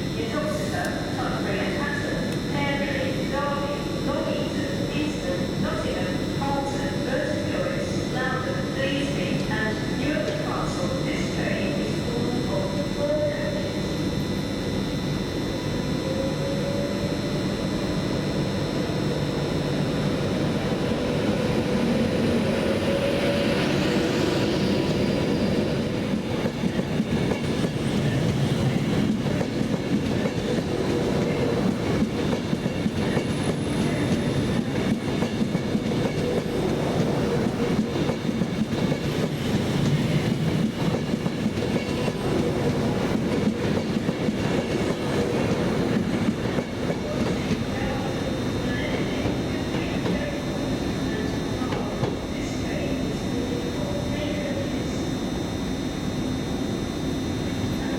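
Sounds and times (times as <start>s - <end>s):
train wheels clattering on rails: 25.9s - 47.8s.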